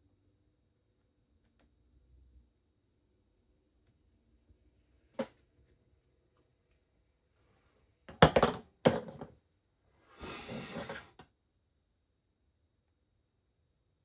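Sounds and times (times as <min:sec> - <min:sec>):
scraping or rustling: 0:10.0 - 0:11.2.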